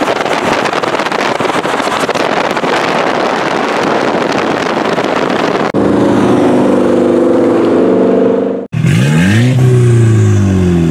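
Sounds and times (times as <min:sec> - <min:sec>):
wind noise on microphone: 0:00.0 - 0:08.2
car engines on road: 0:00.0 - 0:10.9
engine revving up hard: 0:05.4 - 0:10.9.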